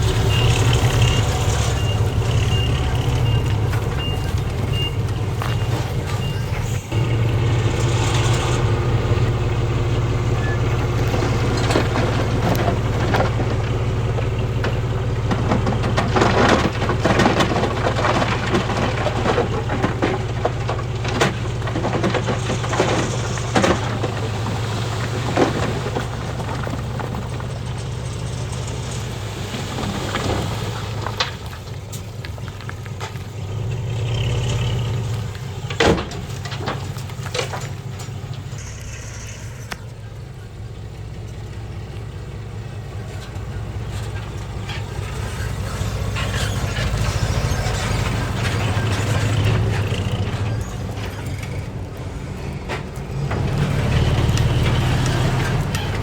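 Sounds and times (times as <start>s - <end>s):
stones clattering and crunching: 0.0s - 9.4s, 10.2s - 39.8s, 43.0s - 56.0s
diesel machinery running: 0.0s - 56.0s
reversing alarm beeping: 0.1s - 7.3s.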